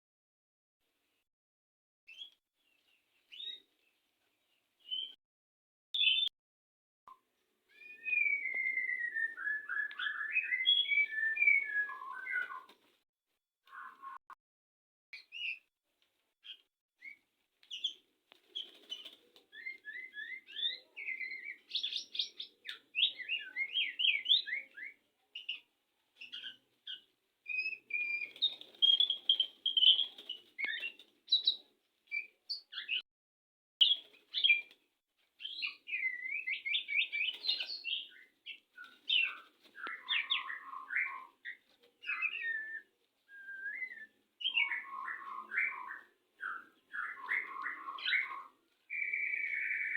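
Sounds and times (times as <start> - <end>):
bird singing whistled phrases: 4.8 - 5.2, 6.0 - 6.3, 7.7 - 12.7, 19.6 - 25.0, 27.5 - 31.6, 35.4 - 38.3, 39.1 - 49.9.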